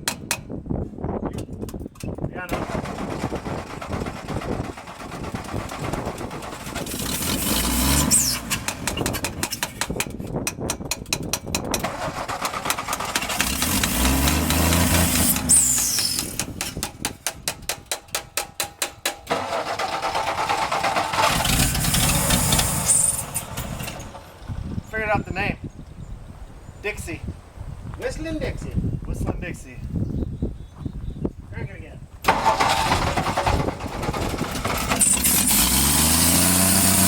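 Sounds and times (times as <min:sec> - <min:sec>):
engine firing and revving: 0:02.5 - 0:09.6, 0:11.7 - 0:17.1, 0:19.3 - 0:24.6, 0:32.2 - 0:37.0
engine starter cranking: 0:02.5 - 0:10.2, 0:11.6 - 0:18.2, 0:19.0 - 0:24.5, 0:32.2 - 0:37.0.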